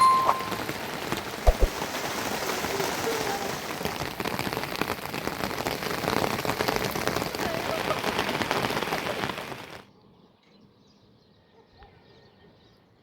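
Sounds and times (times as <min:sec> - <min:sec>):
rain pattering: 0:00.0 - 0:09.9.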